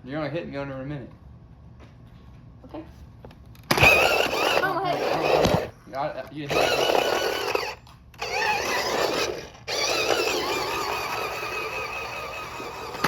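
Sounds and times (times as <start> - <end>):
electric motor and gears whining: 3.6 - 13.0.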